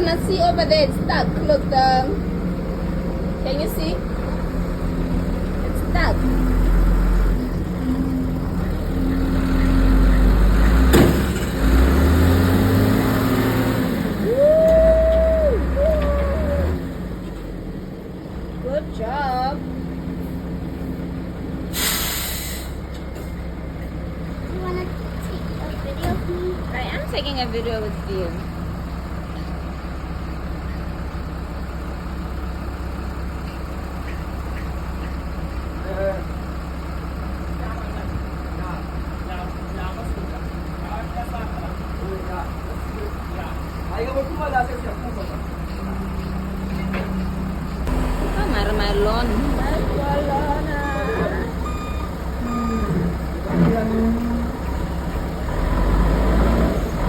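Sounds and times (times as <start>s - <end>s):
heavy diesel machinery running: 0.0s - 57.0s.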